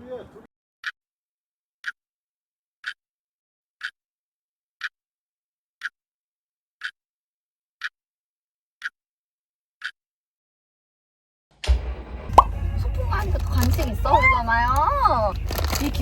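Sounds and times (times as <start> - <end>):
clock ticking: 1.8 - 2.0, 2.8 - 3.0, 3.8 - 4.0, 6.8 - 7.0, 8.8 - 9.0, 9.8 - 10.0.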